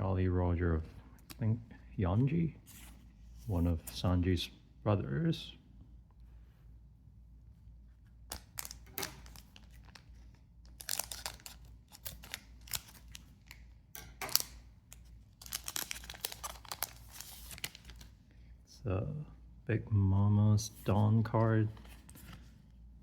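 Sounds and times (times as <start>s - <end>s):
cards being handled: 8.0s - 18.2s
wrapper tearing and crinkling: 8.3s - 13.6s, 14.2s - 18.1s.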